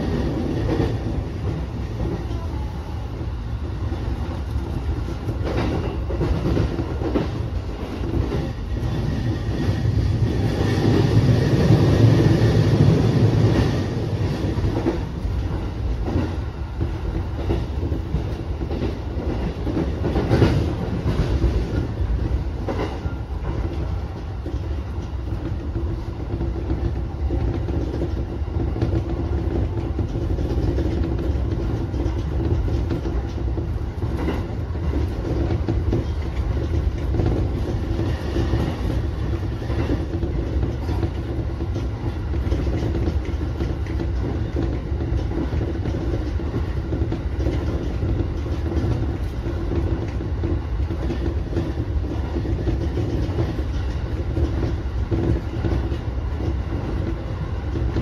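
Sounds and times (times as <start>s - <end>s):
wheels rumbling on rail: 0.0s - 58.0s
wheels clacking over rail joints: 5.1s - 58.0s.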